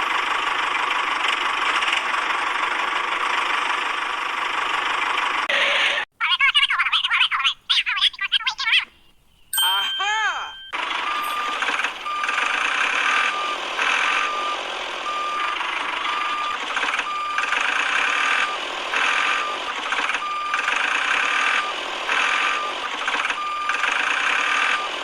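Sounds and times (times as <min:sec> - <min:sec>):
electronic beeper beeping: 0:09.6 - 0:15.5.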